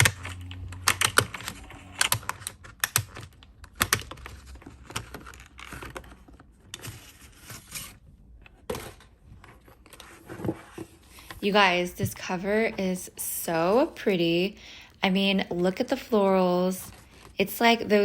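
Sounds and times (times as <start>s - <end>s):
papery rustling: 4.1s - 12.3s.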